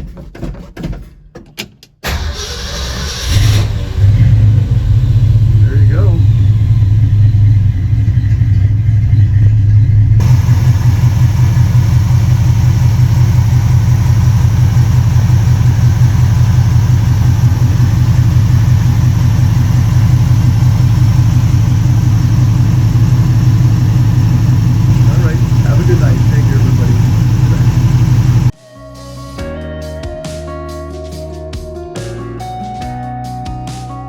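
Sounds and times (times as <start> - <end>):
truck engine idling: 2.0 - 28.6.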